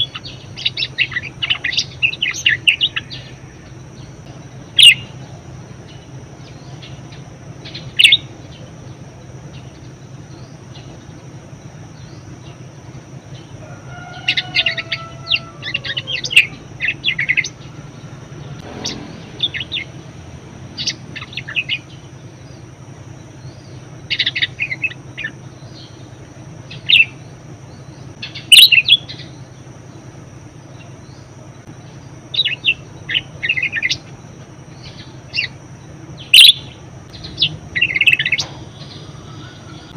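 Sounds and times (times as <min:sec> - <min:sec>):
budgerigar chattering: 0:00.0 - 0:03.7, 0:04.8 - 0:05.2, 0:28.2 - 0:29.3, 0:36.2 - 0:39.9
low hum: 0:00.0 - 0:39.9.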